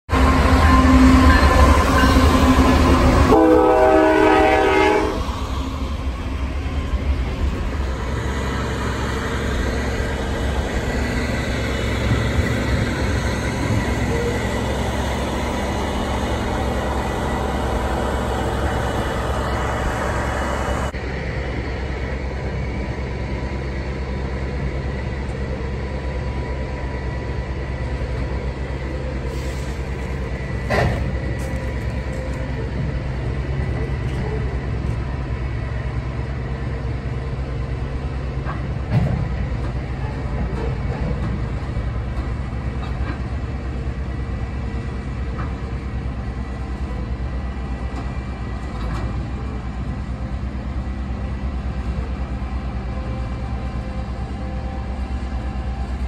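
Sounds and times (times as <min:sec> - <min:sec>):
train rumble and rolling wheels: 0:00.0 - 0:56.0
locomotive horn: 0:00.1 - 0:05.3.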